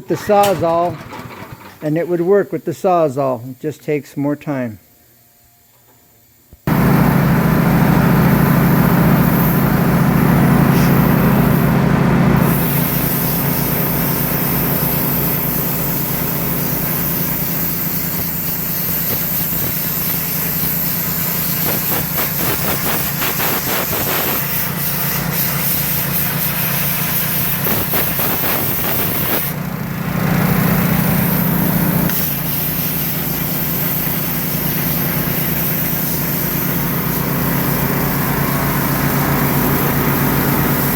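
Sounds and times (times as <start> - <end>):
plasma cutter hissing: 8.2 - 9.8, 10.6 - 11.7, 12.4 - 29.6, 30.5 - 40.9.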